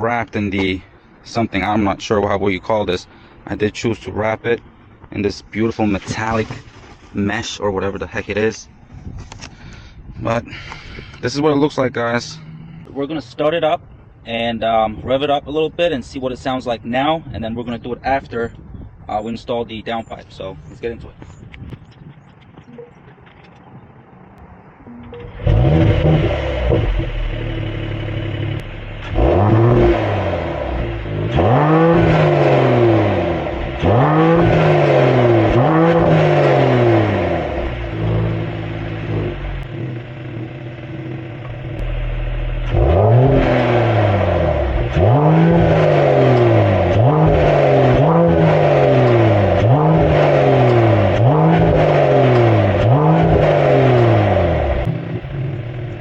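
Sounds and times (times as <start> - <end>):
car engine starting: 0.0 - 14.1, 22.2 - 56.0
car engine revving and idling: 25.0 - 56.0.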